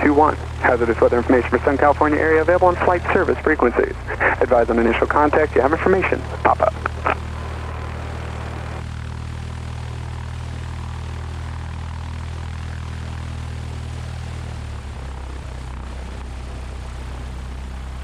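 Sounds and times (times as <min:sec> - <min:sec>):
light aircraft engine idling: 0:00.0 - 0:18.0.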